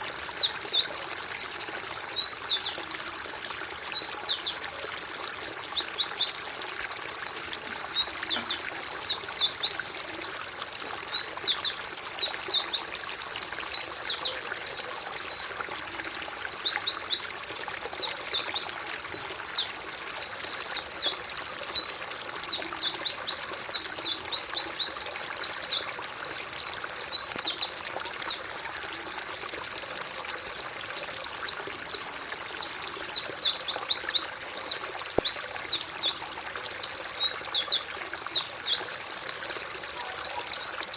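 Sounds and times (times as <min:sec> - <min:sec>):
birds chirping: 0:00.0 - 0:40.9
water trickling: 0:00.0 - 0:40.9.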